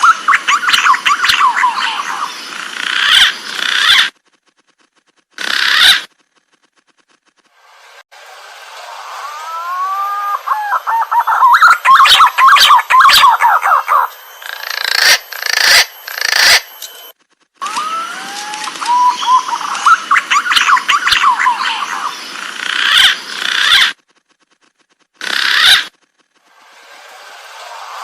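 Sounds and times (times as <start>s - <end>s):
pigeon whistled calls: 0.0s - 2.4s, 9.2s - 16.6s, 17.6s - 22.2s
rapid bird chattering: 0.0s - 6.5s, 10.3s - 16.7s, 18.8s - 26.2s.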